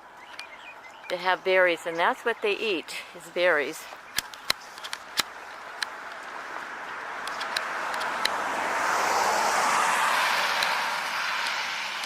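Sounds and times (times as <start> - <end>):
car passing by: 5.9 - 12.0.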